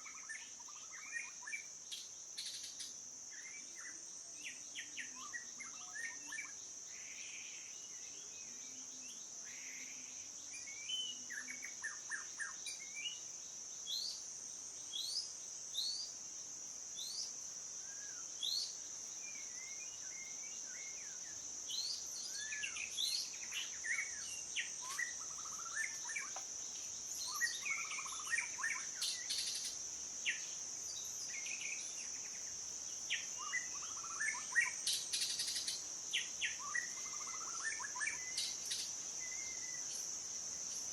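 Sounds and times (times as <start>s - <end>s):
songbirds chirping and whistling: 0.0s - 16.2s, 17.0s - 40.9s
high-pitched insect chorus: 0.0s - 40.9s.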